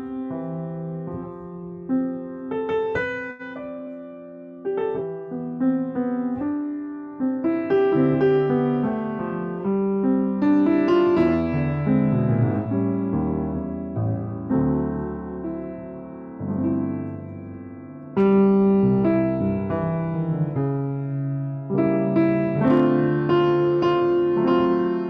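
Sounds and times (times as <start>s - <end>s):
solo piano piece: 0.0s - 25.0s.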